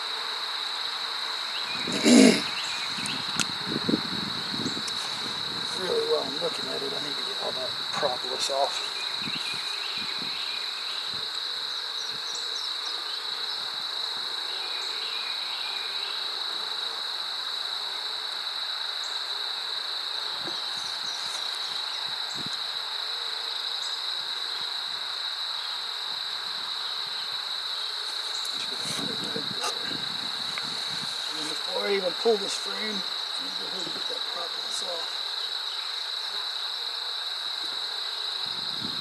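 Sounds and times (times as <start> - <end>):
insects trilling: 0.0 - 39.0.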